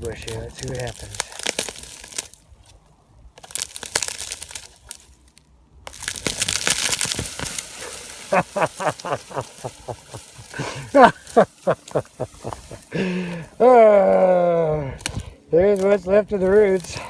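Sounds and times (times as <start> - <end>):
roots and branches snapping: 0.0 - 17.0.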